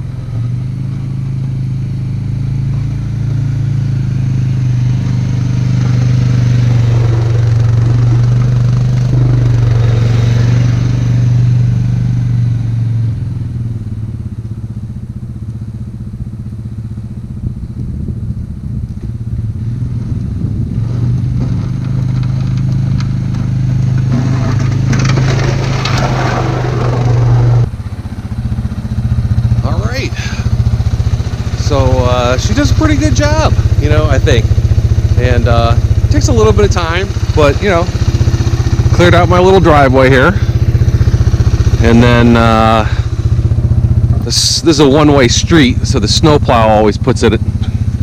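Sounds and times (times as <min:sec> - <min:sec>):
atv engine running: 0:00.0 - 0:48.0
scraping clatter: 0:20.9 - 0:27.7.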